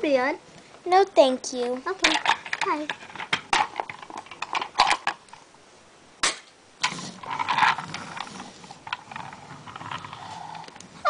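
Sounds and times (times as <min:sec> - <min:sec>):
plastic toys clicking and clacking: 0:02.0 - 0:05.3, 0:06.8 - 0:10.6
rustling: 0:06.8 - 0:11.0.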